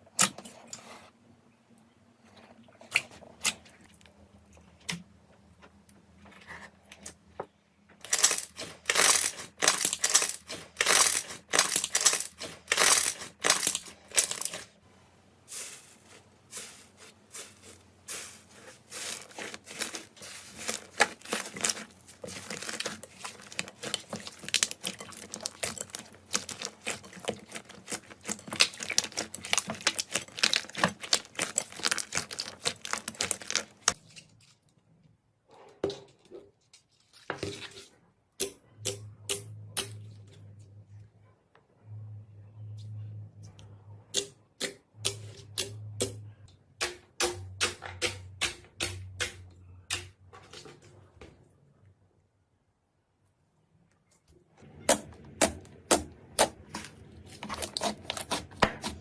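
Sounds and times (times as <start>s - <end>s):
slime crackling when squeezed: 19.3s - 34.0s.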